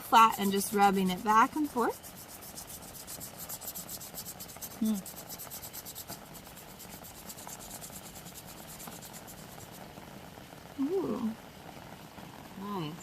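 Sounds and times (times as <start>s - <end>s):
charcoal scratching on paper: 0.2s - 9.9s.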